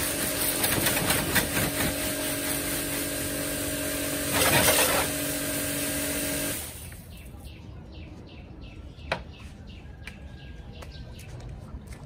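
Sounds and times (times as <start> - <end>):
bird chirping: 6.8 - 11.9.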